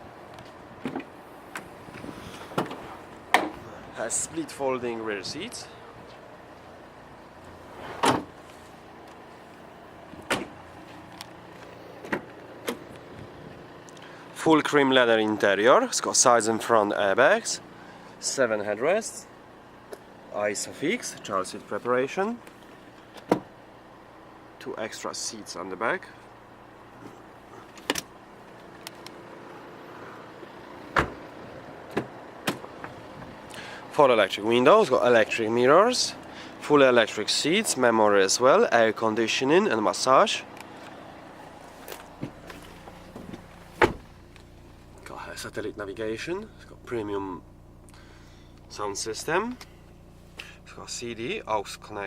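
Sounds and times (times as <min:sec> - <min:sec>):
sharp clunks of car fittings: 0:00.8 - 0:03.6, 0:08.0 - 0:08.4, 0:10.2 - 0:10.6, 0:23.0 - 0:23.5, 0:27.6 - 0:28.1, 0:30.9 - 0:31.2, 0:31.9 - 0:33.3, 0:41.9 - 0:44.2
loud thump: 0:43.2 - 0:44.1.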